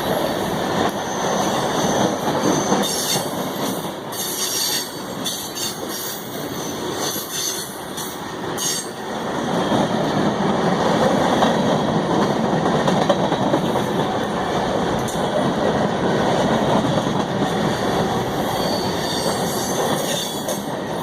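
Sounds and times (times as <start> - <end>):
train wheels rumbling on rails: 0.0 - 21.0
high wheel squeals: 18.4 - 20.5.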